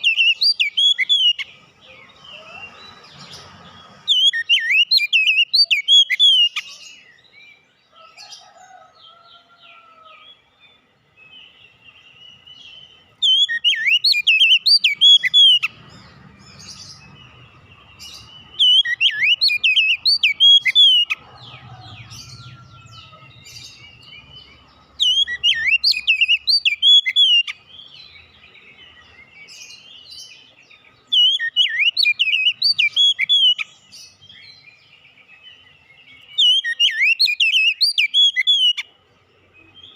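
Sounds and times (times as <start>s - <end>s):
bird singing whistled notes: 0.0s - 7.6s, 10.7s - 39.9s
soft bird twittering: 11.3s - 39.9s.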